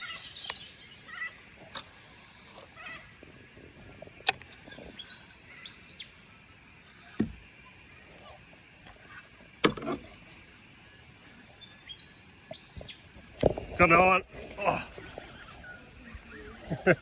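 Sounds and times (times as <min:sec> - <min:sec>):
birds chirping faintly: 0:00.0 - 0:17.0.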